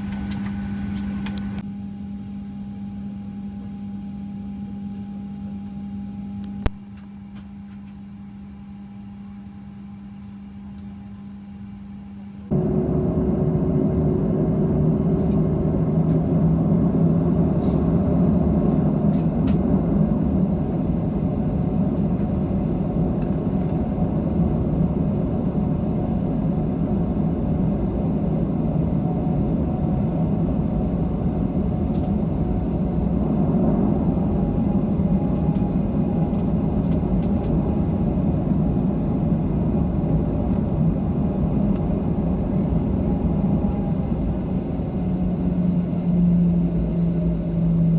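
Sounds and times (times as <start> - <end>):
jet engines rumbling: 0.0 - 1.6, 12.5 - 47.9
cabin airflow: 0.0 - 1.7, 12.5 - 47.9
steady humming tones: 12.3 - 47.9
higher hum: 12.5 - 47.9.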